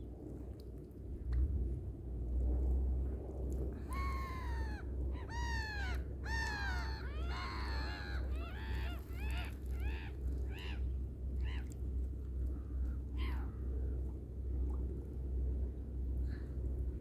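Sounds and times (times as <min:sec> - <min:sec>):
low rumble: 0:01.0 - 0:04.1.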